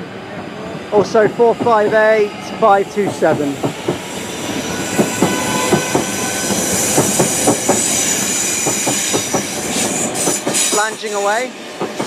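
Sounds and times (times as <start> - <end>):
train wheels knocking over rail joints: 3.0 - 11.1, 11.8 - 12.0.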